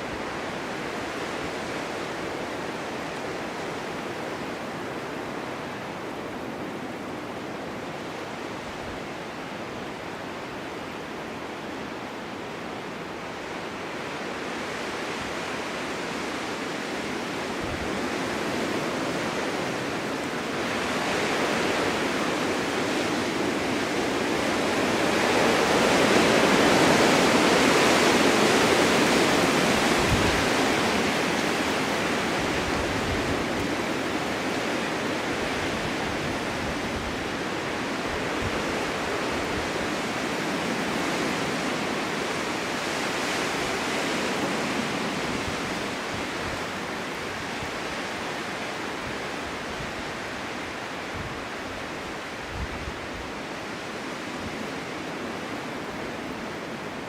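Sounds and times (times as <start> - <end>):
snowstorm wind rushing: 13.9 - 48.5.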